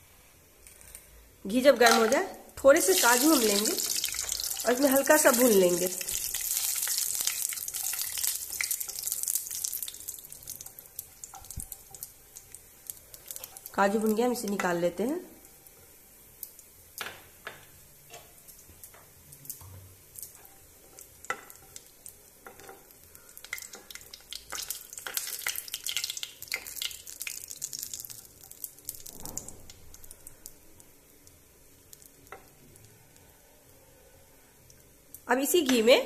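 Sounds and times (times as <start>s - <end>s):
hot fat sizzling and crackling: 1.8s - 35.3s.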